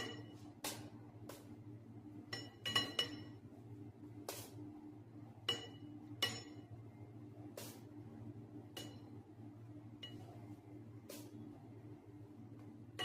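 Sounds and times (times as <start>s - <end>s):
steady low hum: 0.0s - 13.0s
utensil clinking against dish: 2.3s - 3.4s, 5.5s - 6.6s.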